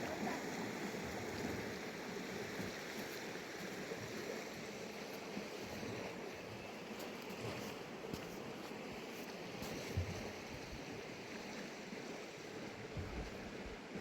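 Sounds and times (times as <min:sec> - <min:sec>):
river flowing: 0:00.0 - 0:13.9.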